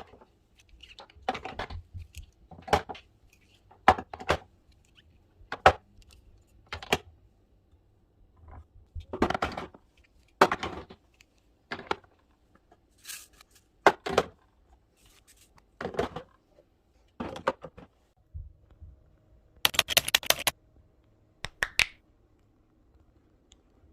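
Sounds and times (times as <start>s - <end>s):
items being handled and set down: 0.0s - 7.1s, 8.4s - 14.4s, 15.0s - 16.5s, 17.1s - 18.1s.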